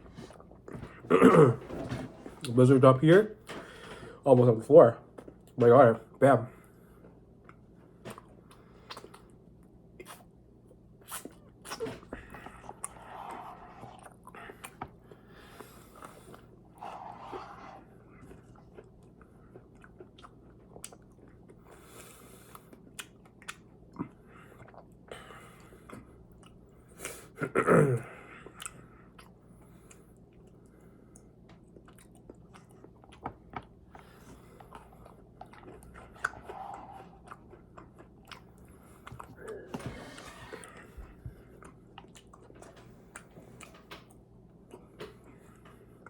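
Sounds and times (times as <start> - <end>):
chewing and biting food: 7.0 - 27.0, 28.4 - 46.0.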